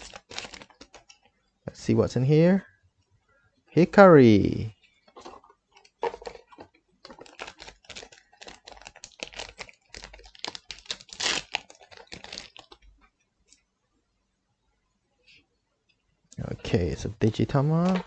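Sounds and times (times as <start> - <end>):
trading cards clicking and rustling: 0.0 - 1.2, 5.1 - 12.8, 17.7 - 18.0.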